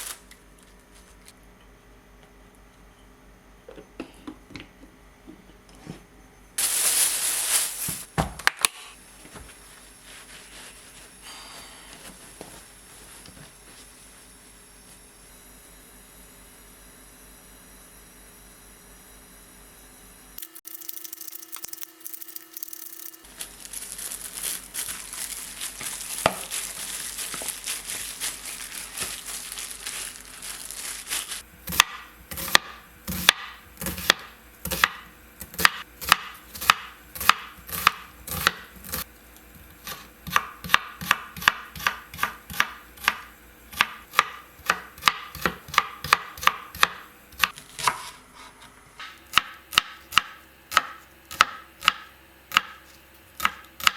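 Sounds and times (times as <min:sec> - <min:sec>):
knife chopping on cutting board: 0:31.7 - 0:39.0, 0:39.8 - 0:53.9.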